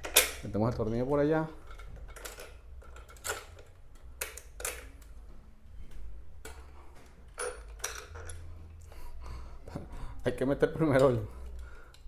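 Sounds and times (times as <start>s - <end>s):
metal fan parts clinking: 0.0s - 5.1s, 6.4s - 8.6s, 10.8s - 12.0s.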